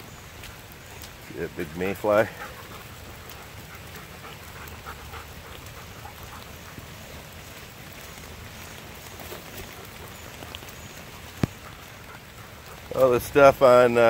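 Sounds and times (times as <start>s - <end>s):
rain falling on leaves: 0.0s - 14.0s
raindrops ticking: 0.0s - 14.0s.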